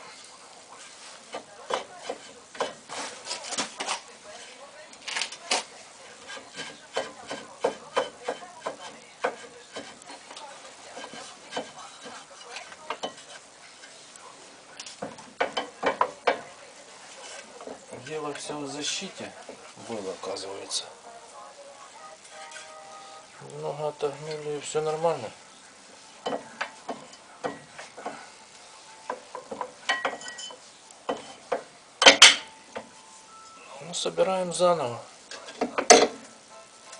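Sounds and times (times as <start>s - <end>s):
light metal scraping: 0.0s - 20.8s, 22.2s - 23.2s, 26.0s - 31.6s.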